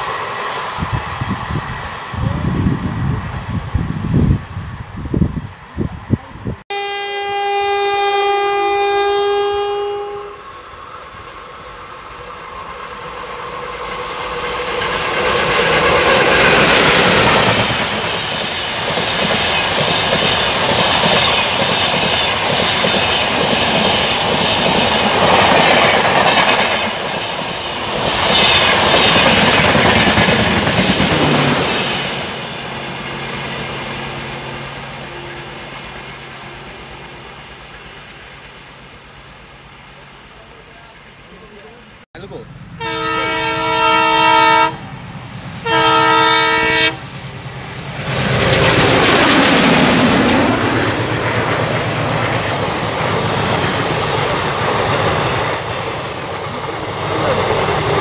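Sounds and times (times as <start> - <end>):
train passing at speed: 0.0 - 58.0
locomotive horn: 6.7 - 10.5, 42.8 - 44.8, 45.6 - 47.0.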